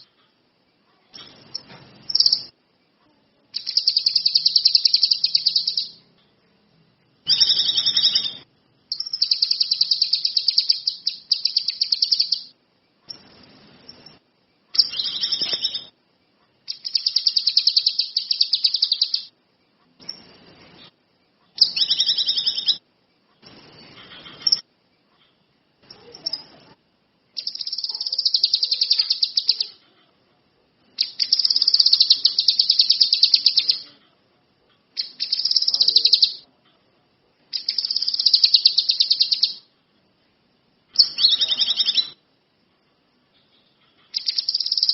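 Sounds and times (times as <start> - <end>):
songbird trilling: 3.6 - 6.0, 7.3 - 12.5, 14.8 - 16.0, 16.7 - 19.3, 21.6 - 22.8, 27.4 - 29.8, 31.0 - 33.9, 35.0 - 36.4, 37.5 - 39.6, 41.0 - 42.2, 44.1 - 44.9.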